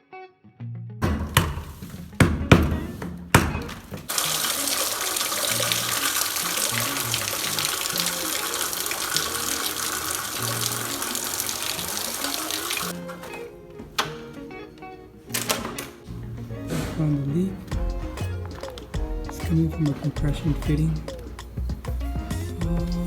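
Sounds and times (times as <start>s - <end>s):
background music: 0.0s - 23.0s
water splashing from leaking pipe: 4.1s - 13.0s.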